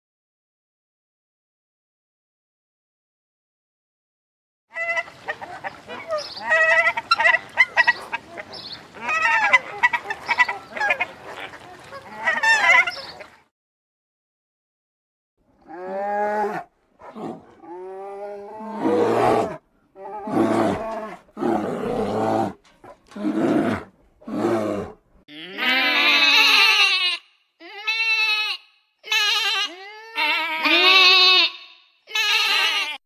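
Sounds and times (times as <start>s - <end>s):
animal calling: 4.7s - 13.4s.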